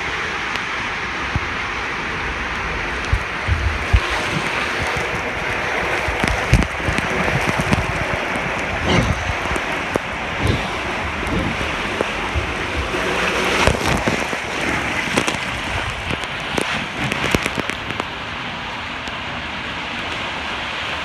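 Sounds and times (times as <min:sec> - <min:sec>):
water rushing down a slide: 0:00.0 - 0:21.0
knocks and splashes: 0:02.8 - 0:18.4.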